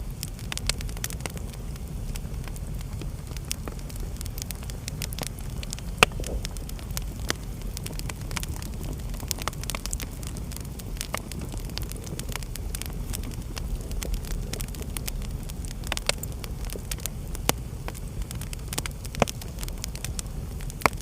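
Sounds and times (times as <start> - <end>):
wood fire crackling: 0.0 - 21.0
loud pop from fire: 2.4 - 10.4.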